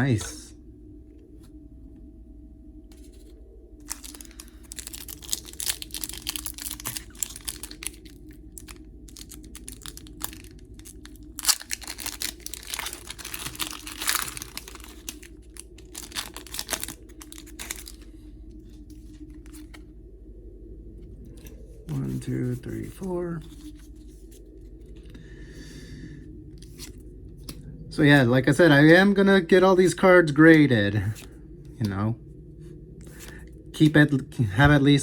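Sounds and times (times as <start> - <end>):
trading cards being handled: 2.9 - 18.1, 21.3 - 24.6
foil wrapper crinkling and tearing: 3.8 - 18.1.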